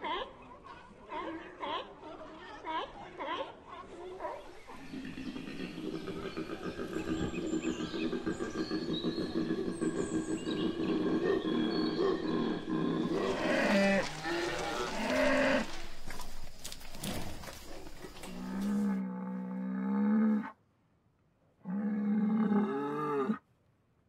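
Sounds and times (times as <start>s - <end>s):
koala bellowing: 10.9s - 16.0s
cattle mooing: 13.0s - 15.9s.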